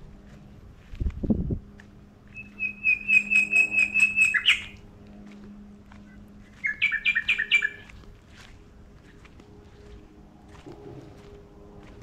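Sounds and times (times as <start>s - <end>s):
songbird calling: 2.3s - 4.8s, 6.1s - 8.0s.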